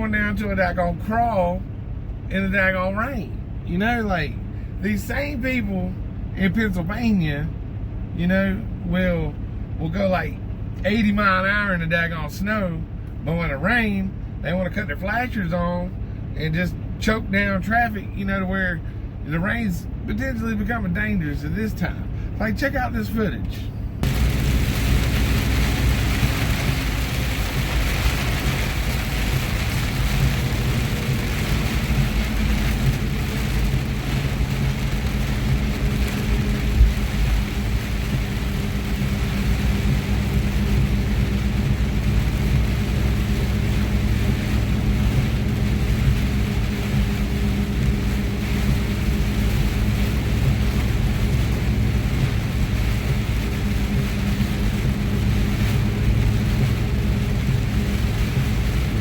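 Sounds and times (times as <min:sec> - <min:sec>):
road noise: 0:00.0 - 0:59.0
truck engine droning: 0:00.0 - 0:59.0
heavy rain: 0:24.0 - 0:59.0.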